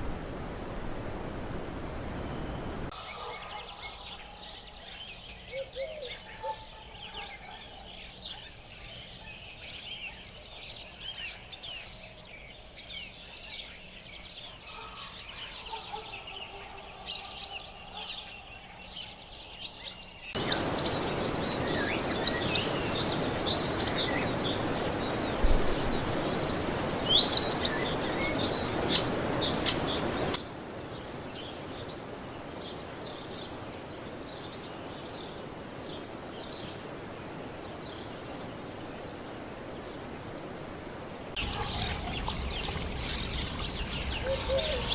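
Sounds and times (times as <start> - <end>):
small birds chirping: 17.8 - 30.4, 41.3 - 44.9.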